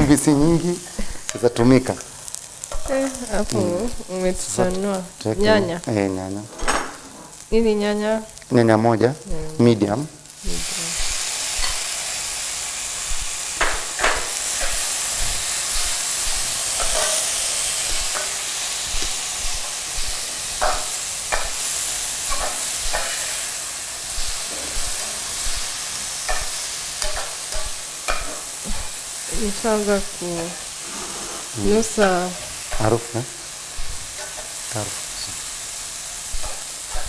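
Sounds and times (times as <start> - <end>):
meat and onions sizzling in pan: 0.0 - 37.0
metal spoon scraping pan: 13.6 - 23.4, 30.4 - 32.9.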